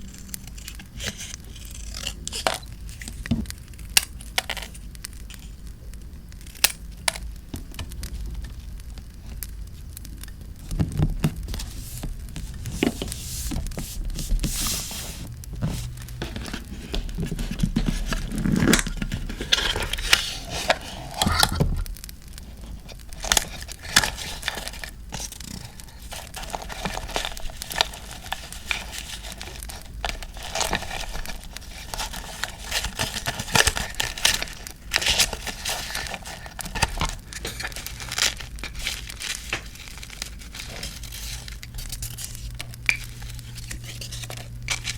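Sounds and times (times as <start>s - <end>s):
paper crinkling and tearing: 11.4s - 44.9s.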